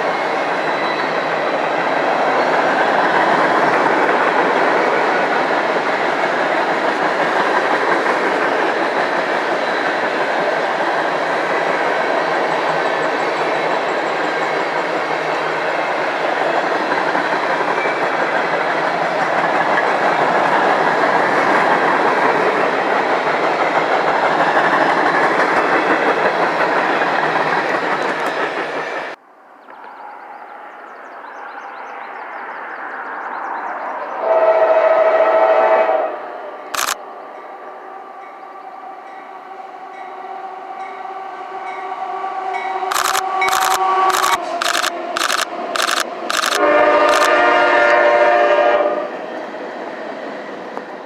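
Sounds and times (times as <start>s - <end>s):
train passing with clickety-clack: 0.0s - 51.0s
train horn blast: 34.2s - 36.7s, 37.6s - 44.6s, 46.6s - 49.2s
sharp click: 36.8s - 37.0s, 42.9s - 47.3s.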